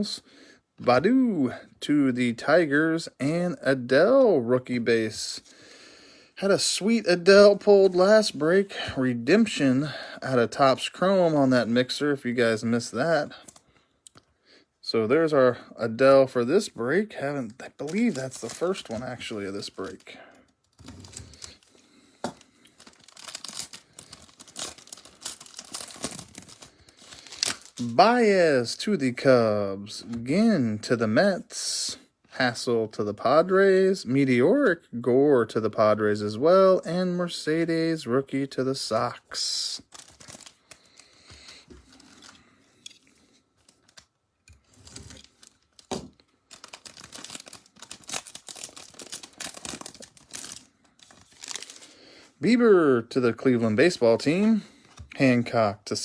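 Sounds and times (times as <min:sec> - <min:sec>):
wrapper tearing and crinkling: 0:17.7 - 0:28.0, 0:39.8 - 0:42.4, 0:43.6 - 0:52.0.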